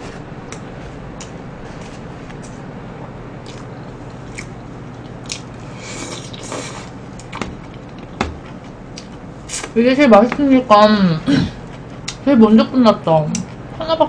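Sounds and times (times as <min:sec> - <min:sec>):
steady low hum: 0:00.0 - 0:14.0
chewing and biting food: 0:03.4 - 0:09.2.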